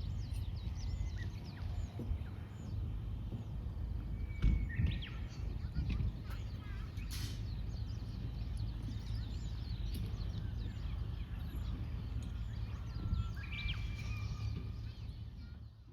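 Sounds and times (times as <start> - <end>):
small birds chirping: 0.0 - 15.9
wind on microphone: 0.0 - 15.9
whistled bird call: 4.1 - 11.6, 12.2 - 15.9.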